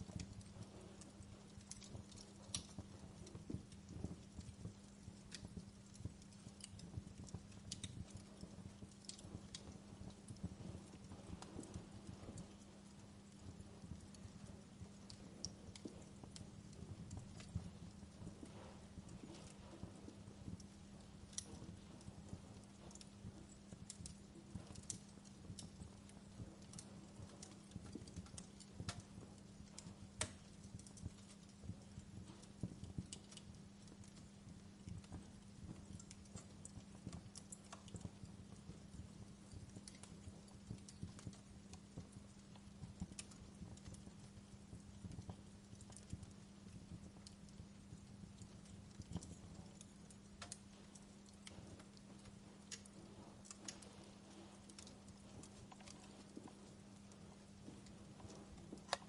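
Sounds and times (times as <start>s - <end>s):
faint low hum: 0.0s - 59.0s
wood fire crackling: 0.0s - 59.0s.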